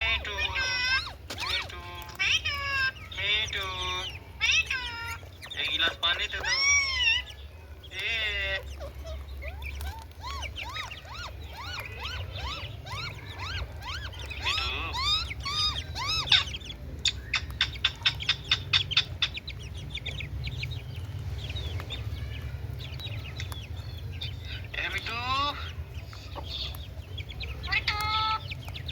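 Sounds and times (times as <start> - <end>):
parrot calling: 0.0 - 28.9.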